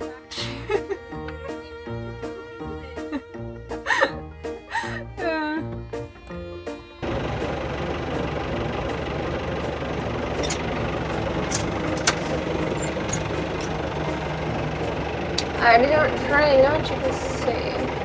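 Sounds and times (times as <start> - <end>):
tractor diesel engine running: 0.0 - 18.0
sharp clicks: 7.2 - 15.6.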